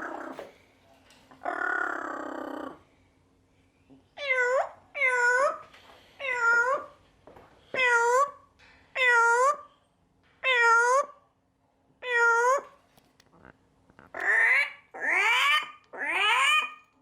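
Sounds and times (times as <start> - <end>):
parrot meow-like calls: 1.4 - 2.8, 4.2 - 5.6, 6.2 - 7.0, 10.4 - 11.2, 12.0 - 12.7, 14.1 - 16.8.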